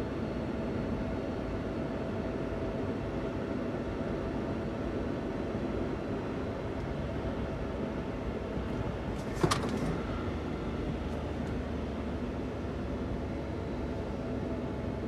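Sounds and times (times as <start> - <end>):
van engine and road noise: 0.0 - 15.0
low engine hum: 6.3 - 15.0.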